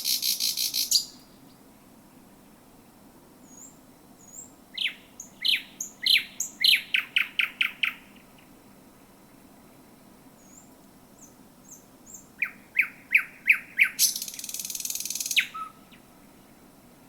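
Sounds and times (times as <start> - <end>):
bird singing: 0.0 - 1.6, 3.4 - 8.5, 10.4 - 16.6.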